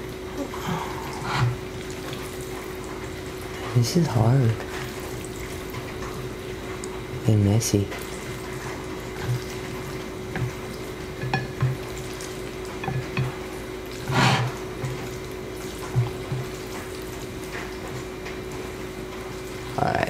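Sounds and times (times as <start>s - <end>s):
steady rain hissing: 0.0s - 12.8s, 13.4s - 20.0s
utensil scraping a bowl: 1.2s - 1.6s, 14.0s - 15.0s.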